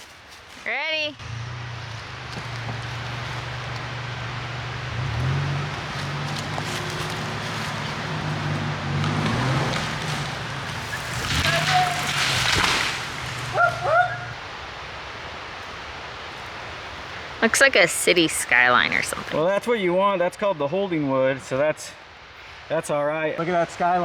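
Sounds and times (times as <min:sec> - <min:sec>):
truck engine running: 0:01.2 - 0:14.7
branches crashing as tree falls: 0:01.3 - 0:14.4
short yelps: 0:13.5 - 0:14.4.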